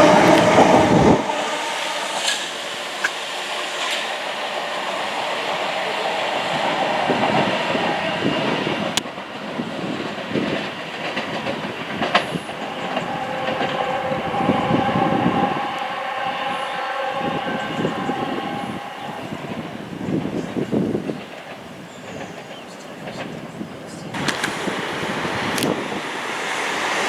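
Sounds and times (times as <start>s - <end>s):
train wheels rumbling on track: 0.0s - 27.0s
steady tone: 12.2s - 20.2s.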